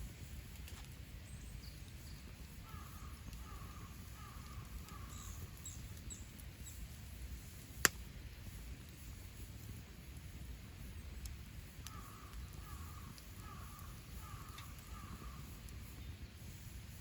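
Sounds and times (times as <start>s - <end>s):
campfire burning: 0.0s - 17.0s
faint bird calls: 1.3s - 6.8s, 11.0s - 16.2s.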